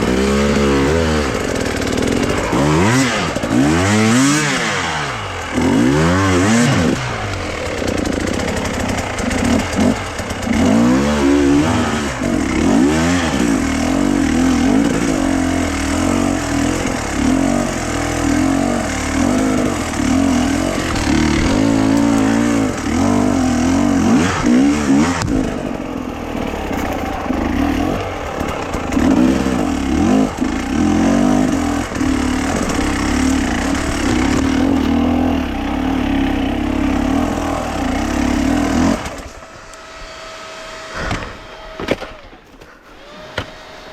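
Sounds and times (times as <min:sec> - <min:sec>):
small petrol engine running hard: 0:00.0 - 0:43.9.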